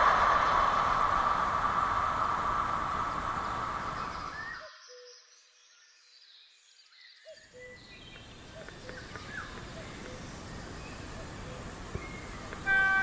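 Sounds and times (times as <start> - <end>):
faint bird chirps: 3.3 - 13.0
electric train running: 12.4 - 13.0.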